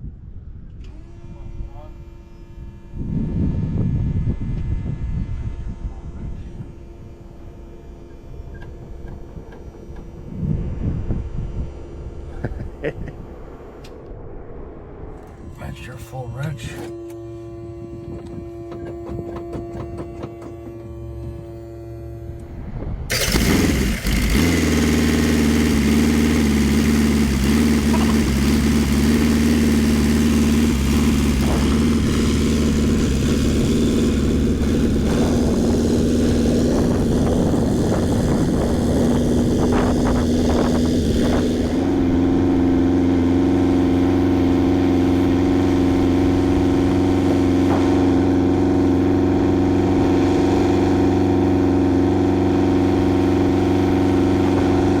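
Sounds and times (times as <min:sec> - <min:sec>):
helicopter engine and rotor: 0:23.1 - 0:42.8.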